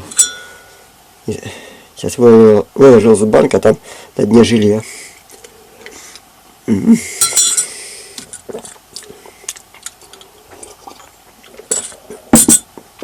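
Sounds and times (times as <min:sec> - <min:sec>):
cutlery clinking on glass jar: 0:00.0 - 0:00.7, 0:07.2 - 0:07.7, 0:11.6 - 0:12.7.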